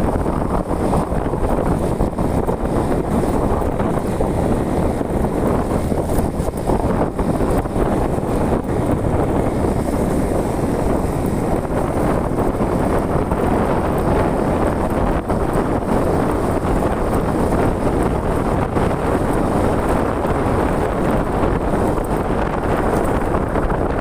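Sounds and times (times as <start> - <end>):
vehicle engine running: 0.0 - 24.0
wind rushing over microphone: 0.0 - 24.0.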